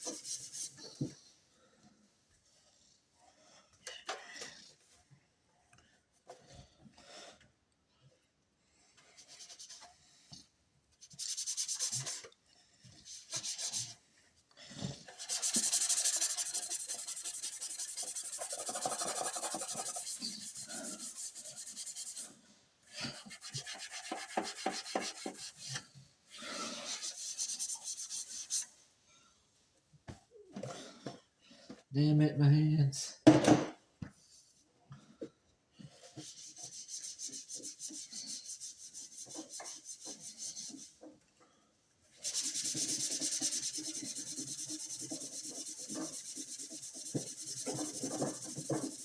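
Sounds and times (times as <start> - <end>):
hand scrubbing hard surface: 11.0 - 12.3, 13.0 - 14.0, 14.9 - 28.7, 36.0 - 41.1, 42.1 - 49.0.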